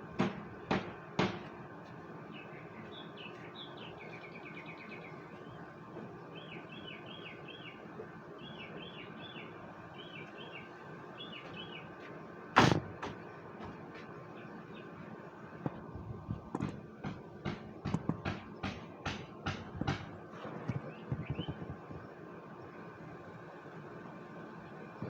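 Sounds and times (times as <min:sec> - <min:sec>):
steady background hum: 0:00.0 - 0:25.0
bird chirping: 0:02.3 - 0:05.7, 0:06.3 - 0:12.0, 0:19.8 - 0:22.8.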